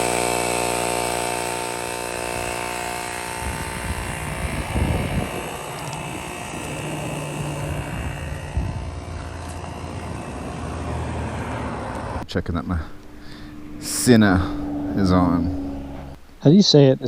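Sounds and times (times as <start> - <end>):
motorcycle pulling away: 0.0 - 12.2
motorcycle engine idling: 0.7 - 12.2.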